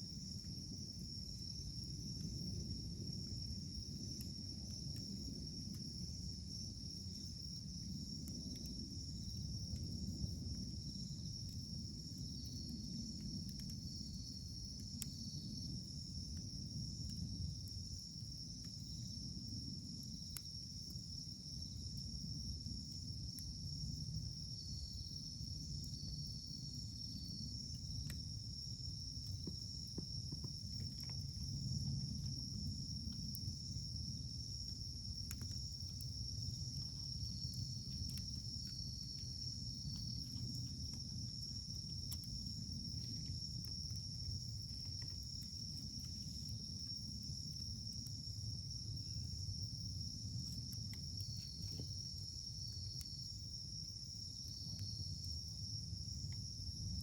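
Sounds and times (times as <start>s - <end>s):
insects chirring: 0.0s - 57.0s
campfire crackling and popping: 33.1s - 47.1s.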